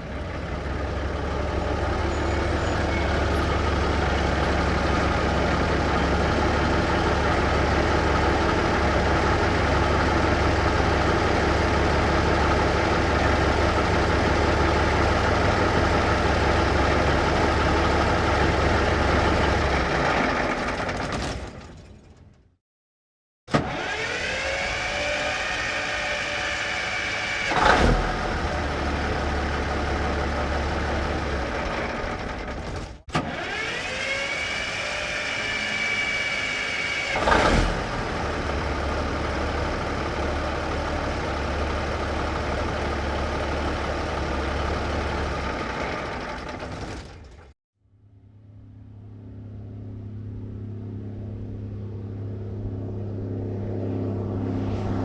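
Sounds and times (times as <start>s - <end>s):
truck engine running: 0.0s - 22.4s, 23.6s - 47.5s
starter motor whining: 23.5s - 28.0s, 31.9s - 38.4s.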